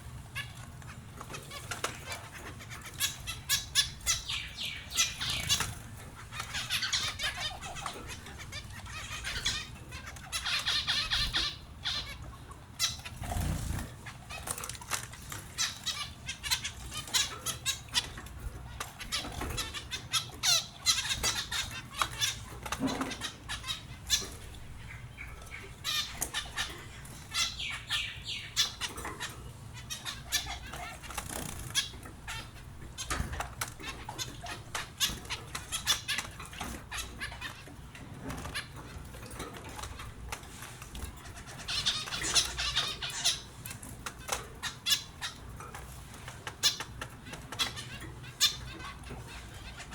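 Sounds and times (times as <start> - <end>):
finches chirping: 1.4 - 12.2, 15.6 - 39.0, 41.2 - 45.6, 46.5 - 49.9
wings fluttering: 13.0 - 17.3.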